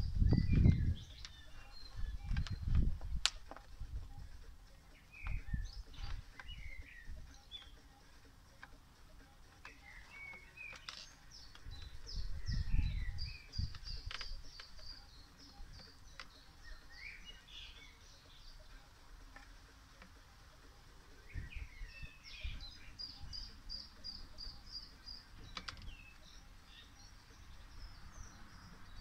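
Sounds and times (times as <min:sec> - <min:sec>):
low rumbles: 0:00.0 - 0:07.4
songbirds chirping and singing: 0:00.0 - 0:29.0.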